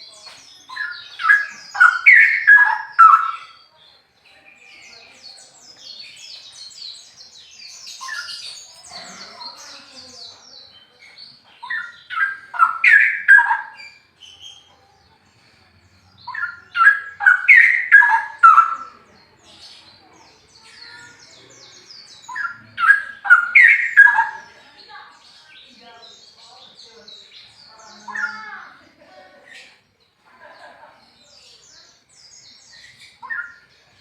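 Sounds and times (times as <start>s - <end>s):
bird singing bubbling phrases: 0.7s - 3.7s, 11.6s - 14.0s, 16.3s - 19.0s, 22.2s - 24.6s.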